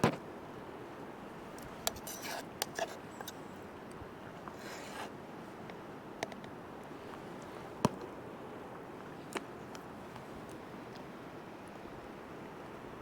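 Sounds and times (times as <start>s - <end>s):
background hiss: 0.0s - 13.0s
short clicks and scrapes: 1.8s - 3.4s.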